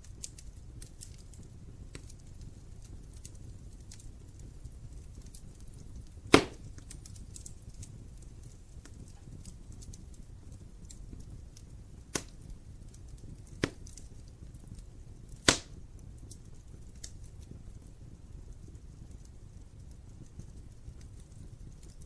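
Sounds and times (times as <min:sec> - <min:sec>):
fire flames rumbling: 0:00.0 - 0:22.0
small fire crackles: 0:00.0 - 0:22.0
logs popping: 0:06.3 - 0:07.8, 0:12.1 - 0:12.4, 0:13.4 - 0:14.0, 0:15.4 - 0:15.8.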